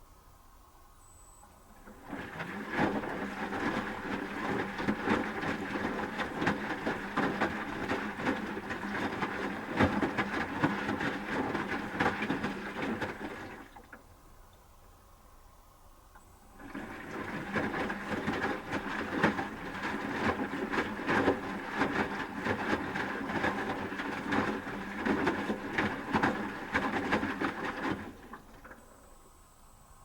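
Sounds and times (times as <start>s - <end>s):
motor hum: 1.4s - 14.4s
water and laundry splashing: 1.7s - 14.1s, 16.4s - 28.9s
washing machine drum tumbling: 1.8s - 13.7s, 16.6s - 28.7s.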